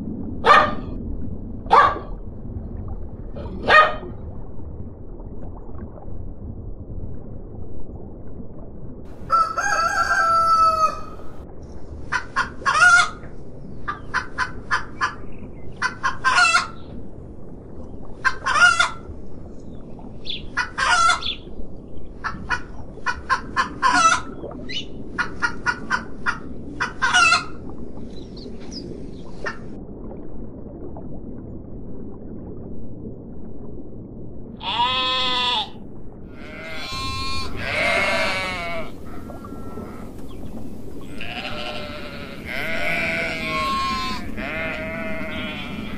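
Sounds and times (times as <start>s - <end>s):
hens clucking and squawking: 9.3s - 11.3s, 12.1s - 13.2s, 15.8s - 16.8s, 18.2s - 19.0s, 20.6s - 21.4s, 22.2s - 24.3s, 25.2s - 27.6s, 41.0s - 45.9s
rooster crowing: 9.3s - 11.3s.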